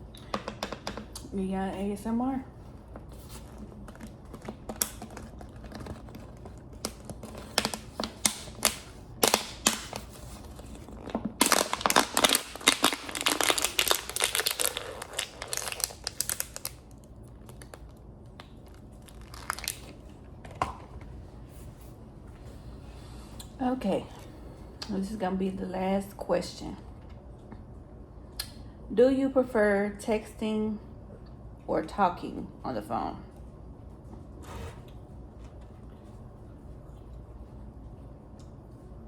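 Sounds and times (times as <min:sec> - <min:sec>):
eating crunches: 0:03.5 - 0:20.0.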